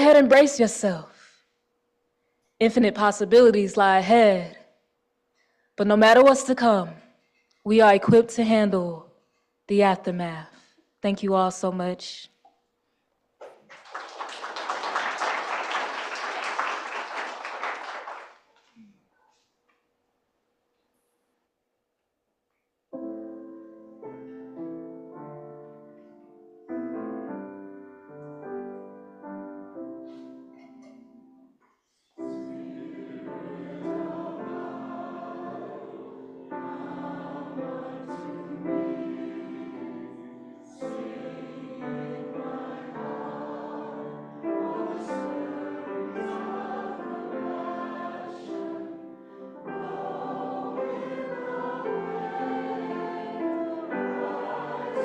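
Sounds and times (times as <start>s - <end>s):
choir singing: 32.2s - 55.0s
piano chords: 32.2s - 55.0s.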